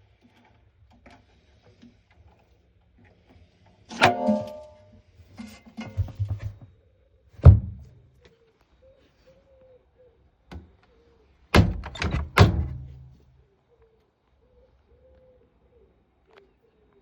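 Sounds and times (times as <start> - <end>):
washing machine door thunks: 3.9 - 4.8, 7.4 - 7.9, 11.6 - 13.1.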